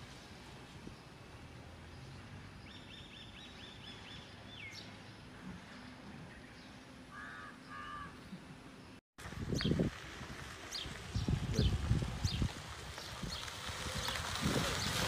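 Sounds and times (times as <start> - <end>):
birds chirping: 0.9 - 9.8.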